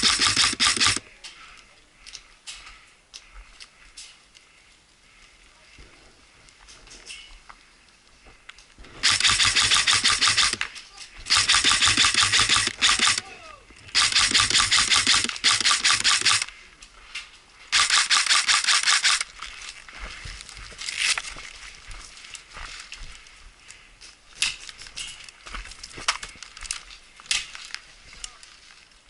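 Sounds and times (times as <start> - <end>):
airsoft gun rapid firing: 0.0 - 1.0, 9.0 - 10.6, 11.3 - 13.3, 13.9 - 16.5, 17.7 - 19.3.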